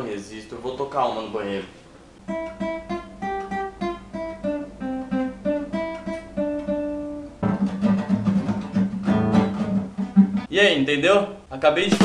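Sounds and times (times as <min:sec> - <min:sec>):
acoustic guitar playing: 0:02.2 - 0:10.5.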